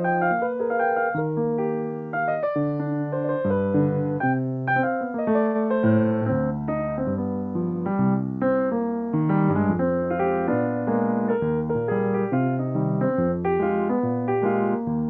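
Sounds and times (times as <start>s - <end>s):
solo piano: 0.0s - 15.0s.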